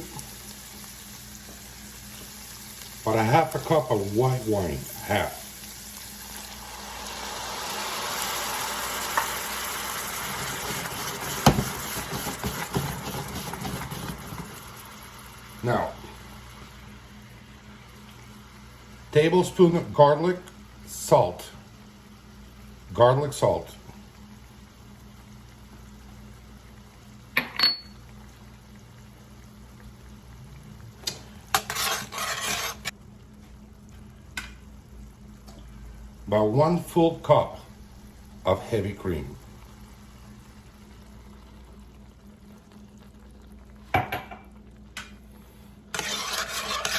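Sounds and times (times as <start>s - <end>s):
wine sizzling in hot pan: 0.0s - 46.9s
stirring and scraping in pan: 10.2s - 14.8s, 31.2s - 33.0s, 45.4s - 46.9s.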